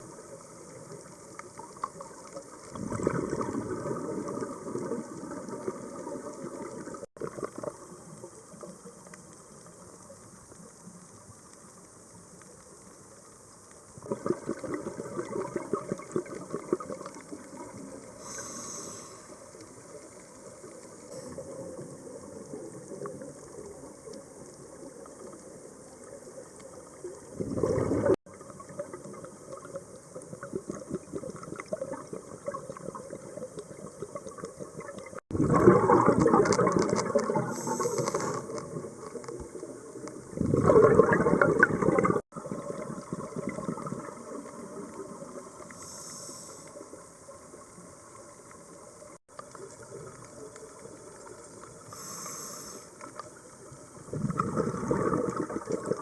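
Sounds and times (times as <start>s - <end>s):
underwater hiss: 0.0s - 56.0s
diver's exhaled bubbles: 2.6s - 7.8s, 14.0s - 17.8s, 27.3s - 29.7s, 30.4s - 39.1s, 40.3s - 44.9s, 54.0s - 56.0s.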